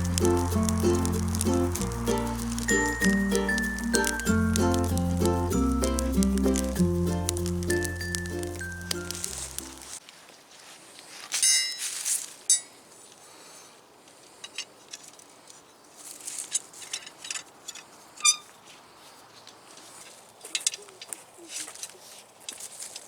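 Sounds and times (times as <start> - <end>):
small hard objects clinking: 0.0 - 10.0
light clicks and rustles: 14.1 - 18.8, 19.4 - 23.0.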